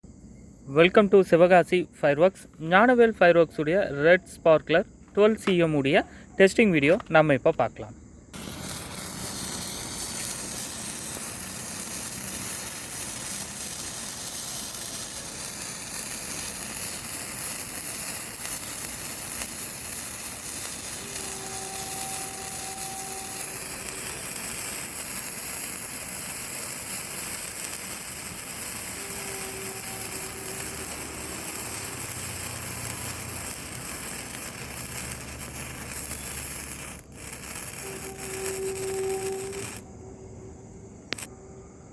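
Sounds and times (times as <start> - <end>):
sparkler sizzling hiss: 8.3 - 39.9, 41.1 - 41.3.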